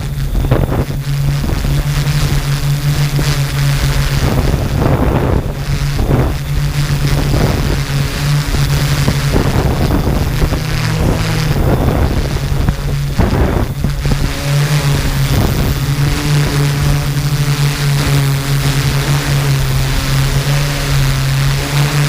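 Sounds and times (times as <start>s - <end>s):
drone propellers humming: 0.0s - 22.0s
wind noise on microphone: 0.0s - 22.0s.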